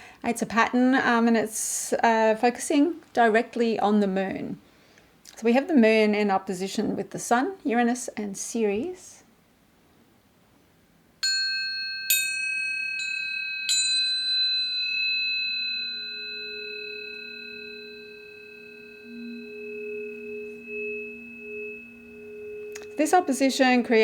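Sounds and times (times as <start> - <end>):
tuning forks ringing: 11.2 - 24.0
low two-note hum: 16.6 - 24.0.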